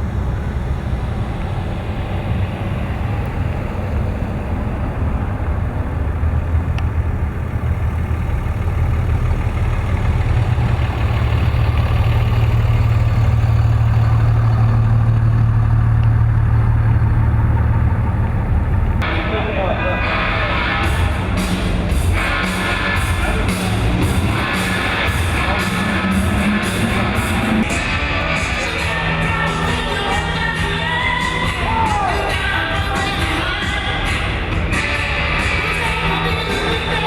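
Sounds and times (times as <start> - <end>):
hum: 0.0 - 19.2
truck engines rumbling: 0.0 - 37.0.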